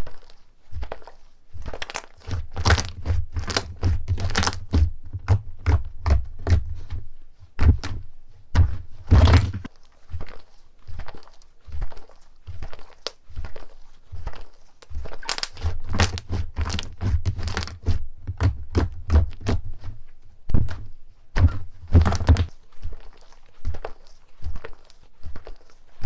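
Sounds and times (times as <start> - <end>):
soft thuds: 6.0 - 9.7, 18.2 - 22.5
slime popping and clicking: 15.2 - 16.2.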